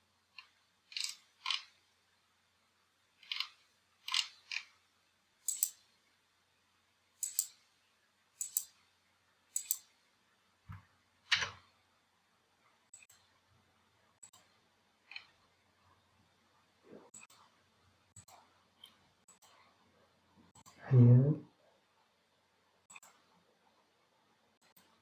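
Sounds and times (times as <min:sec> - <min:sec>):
computer mouse clicking: 0:00.3 - 0:01.8, 0:03.2 - 0:04.8, 0:05.4 - 0:05.9, 0:07.2 - 0:07.6, 0:08.4 - 0:08.8, 0:09.5 - 0:09.9, 0:14.2 - 0:15.4, 0:17.1 - 0:17.5, 0:18.2 - 0:19.7, 0:22.9 - 0:23.3, 0:24.6 - 0:25.0.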